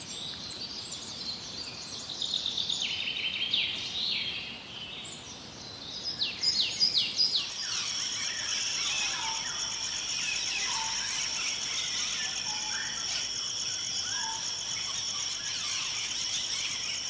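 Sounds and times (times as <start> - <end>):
insect trill: 6.0 - 17.0.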